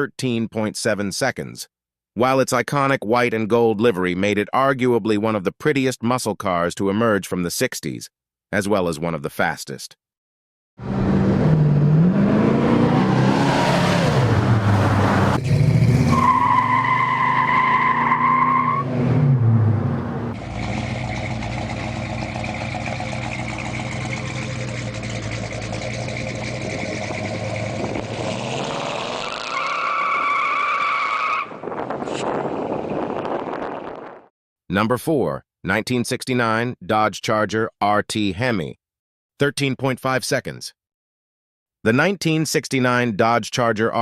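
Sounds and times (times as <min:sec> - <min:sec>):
car engine revving: 0:10.8 - 0:29.8
tires squealing: 0:10.8 - 0:32.3.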